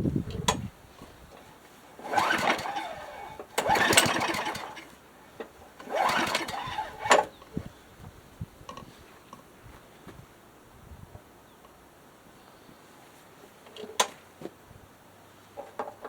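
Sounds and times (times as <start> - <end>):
lawn mower engine cranking: 1.3 - 7.5.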